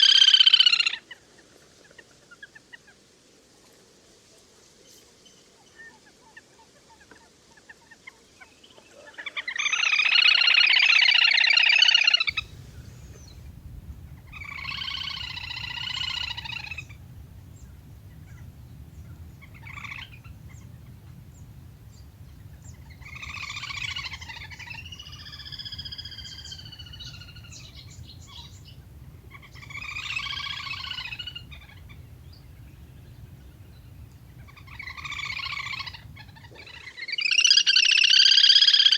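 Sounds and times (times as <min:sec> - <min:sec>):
low steady hum: 0:12.3 - 0:36.6
grebe trilling calls: 0:12.3 - 0:38.9.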